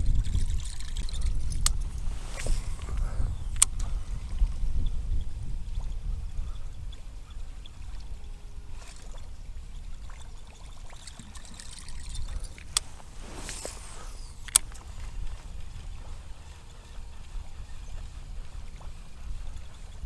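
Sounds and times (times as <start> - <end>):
water around a kayak: 0.0 - 20.0
short rush of noise: 12.8 - 14.5.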